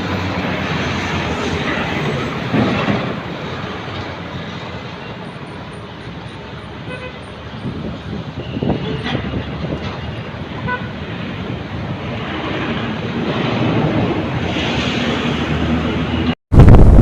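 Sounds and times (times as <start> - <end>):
heavy trucks rumbling: 0.0 - 17.0
wind on microphone: 7.4 - 10.5, 16.5 - 17.0.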